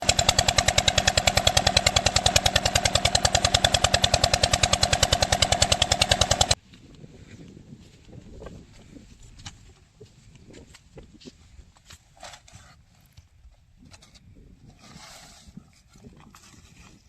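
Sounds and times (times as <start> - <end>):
diesel engine running: 0.0 - 6.6.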